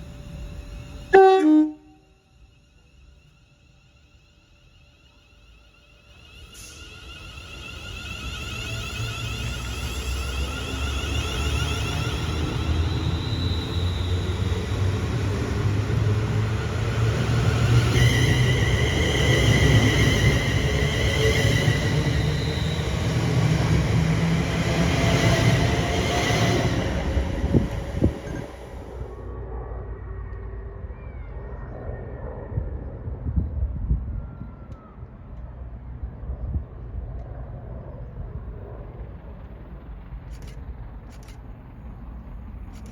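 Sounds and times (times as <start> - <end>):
high-pitched whining tones: 0.0 - 32.9
train rumbling: 0.0 - 42.9.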